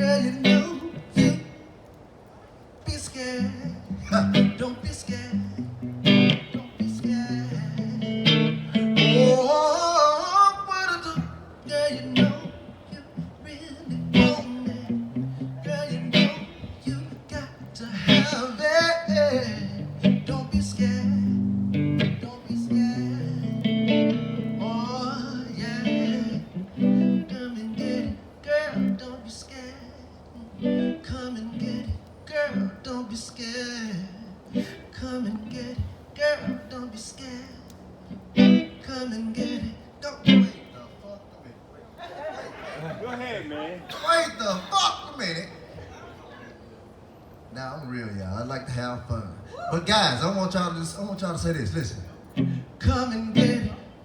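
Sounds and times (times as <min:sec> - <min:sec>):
acoustic guitar strumming chords: 0:00.0 - 0:01.6, 0:03.4 - 0:29.2, 0:38.1 - 0:41.0, 0:52.3 - 0:54.0.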